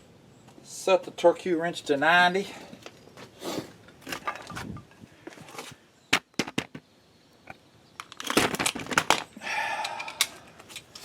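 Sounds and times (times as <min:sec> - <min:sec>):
rustling and scraping of tools: 0:02.5 - 0:05.9, 0:08.0 - 0:11.0.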